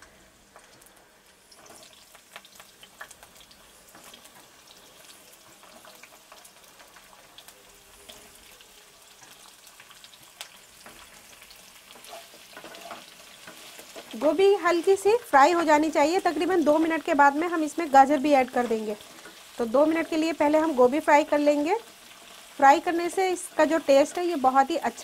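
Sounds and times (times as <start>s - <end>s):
vegetables frying in hot oil: 0.0s - 25.0s.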